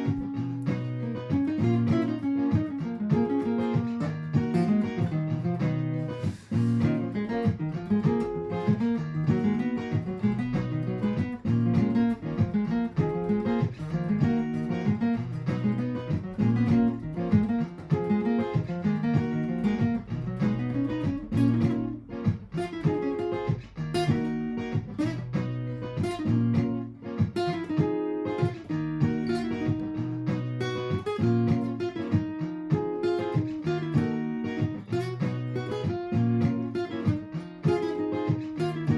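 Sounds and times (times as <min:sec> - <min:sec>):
steady bass line: 0:00.0 - 0:27.4
acoustic guitar plucking and strumming: 0:00.0 - 0:38.9
looped guitar layers: 0:00.0 - 0:38.9.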